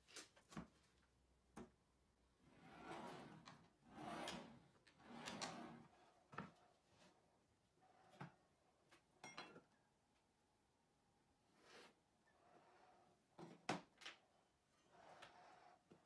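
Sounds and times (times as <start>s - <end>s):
drawer slides rolling swish: 2.5s - 6.0s.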